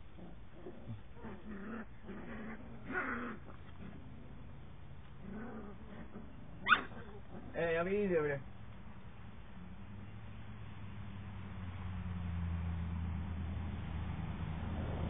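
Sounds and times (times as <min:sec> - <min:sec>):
puppies growling and whining: 0:00.0 - 0:07.7.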